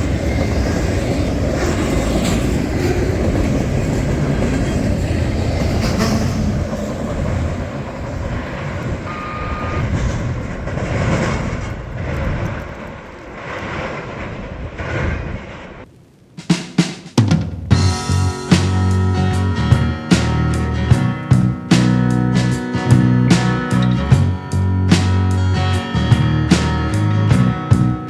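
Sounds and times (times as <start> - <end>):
train cars rolling on rails: 0.0 - 16.0.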